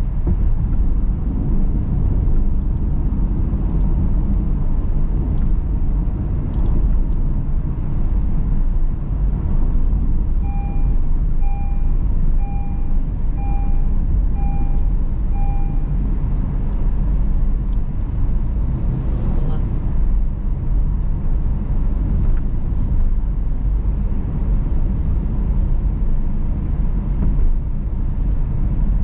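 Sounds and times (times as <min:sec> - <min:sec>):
car road and engine rumble: 0:00.0 - 0:29.0
car warning chime beeps: 0:10.4 - 0:16.0.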